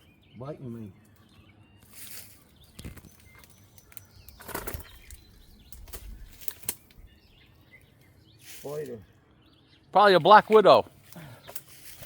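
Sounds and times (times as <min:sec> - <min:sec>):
branches rustling and snapping: 0:01.1 - 0:07.2, 0:10.3 - 0:12.0.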